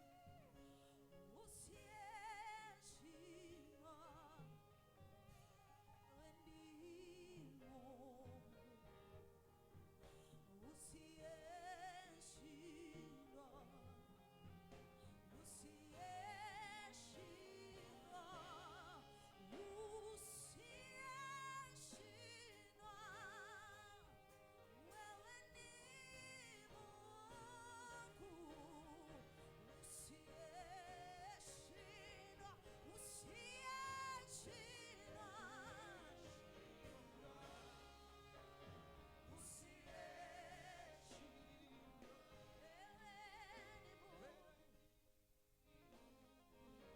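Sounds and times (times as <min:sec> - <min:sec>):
person singing with vibrato: 0:10.6 - 0:14.0, 0:15.2 - 0:44.7.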